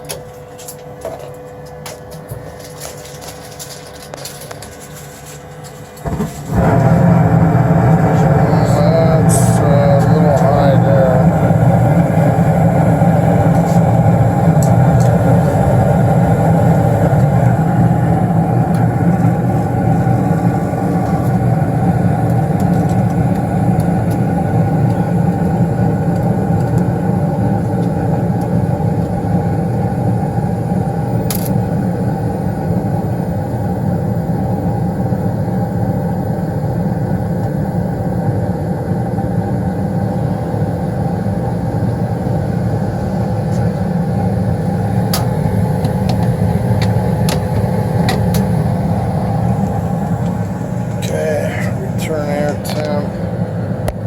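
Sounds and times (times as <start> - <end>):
gas furnace rumbling: 0.0 - 54.0.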